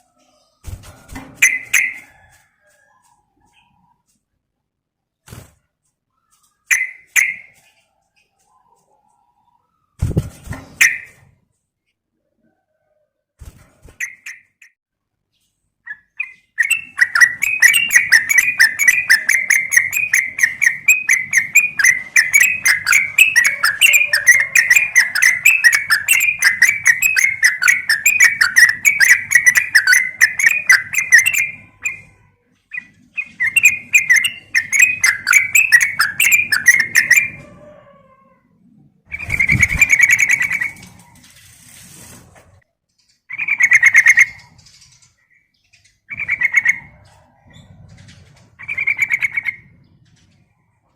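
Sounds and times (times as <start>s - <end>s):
bulbul singing chattering notes: 1.4s - 2.1s, 16.2s - 37.4s.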